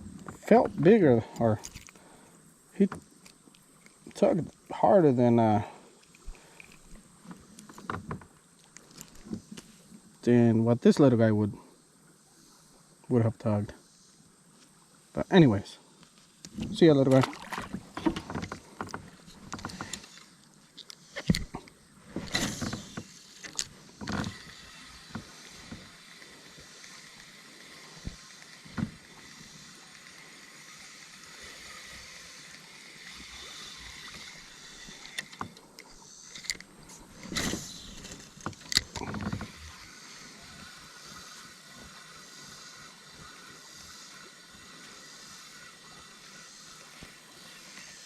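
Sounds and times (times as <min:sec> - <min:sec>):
flowing water: 0:14.8 - 0:48.0
knocks and splashes on kayak hull: 0:16.5 - 0:19.7.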